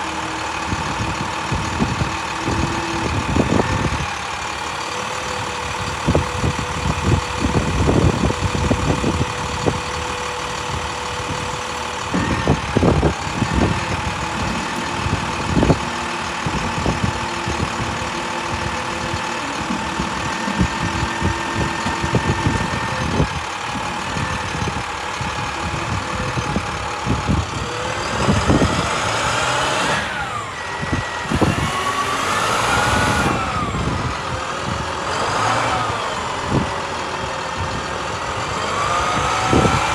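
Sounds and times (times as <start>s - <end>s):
diesel engine running: 0.0s - 39.9s
whines gliding in pitch: 27.6s - 34.5s.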